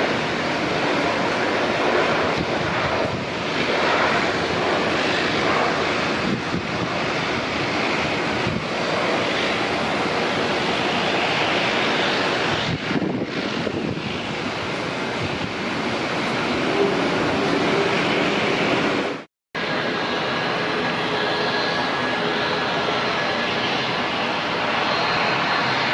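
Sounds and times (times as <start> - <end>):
wind on microphone: 0.0 - 19.3
jet engines running: 0.0 - 25.9.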